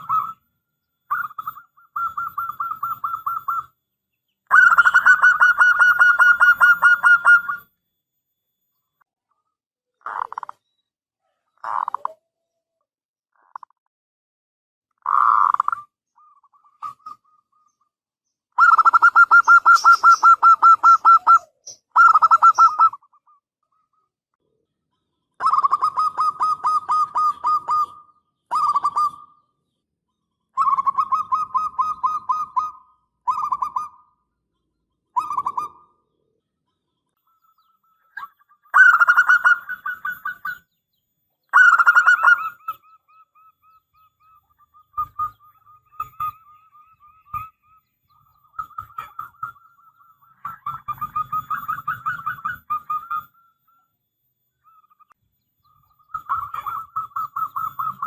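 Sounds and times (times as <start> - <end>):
dove cooing: 0.0 - 0.4, 1.1 - 3.7, 4.5 - 7.7, 18.6 - 23.9, 25.4 - 29.4, 30.6 - 34.1, 35.2 - 36.0, 37.4 - 40.7, 41.5 - 53.4, 56.1 - 58.0.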